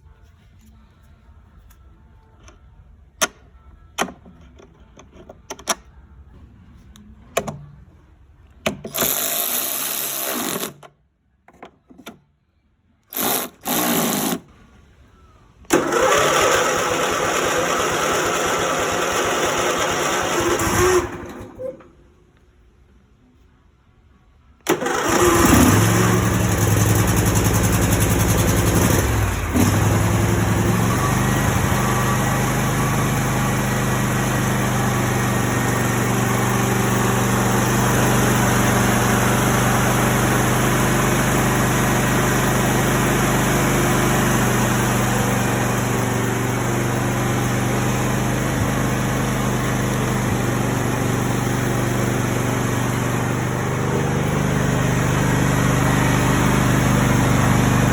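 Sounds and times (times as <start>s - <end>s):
engine starting and idling: 15.6s - 22.2s, 24.6s - 57.9s.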